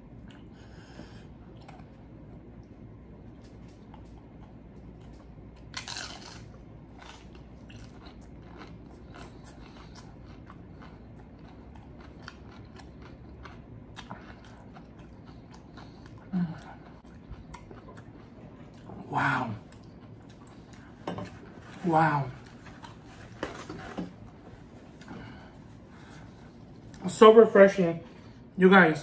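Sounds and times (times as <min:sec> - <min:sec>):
crunching and chewing chips: 0:03.3 - 0:27.2.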